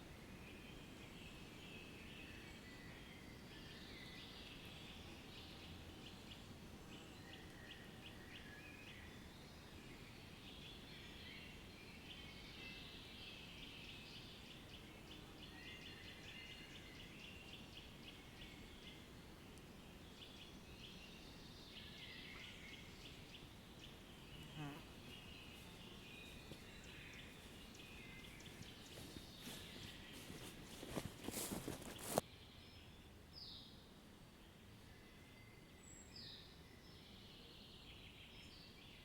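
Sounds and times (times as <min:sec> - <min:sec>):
low steady background hiss: 0:00.0 - 0:30.2, 0:32.2 - 0:39.0
birds chirping and trilling: 0:20.2 - 0:32.2.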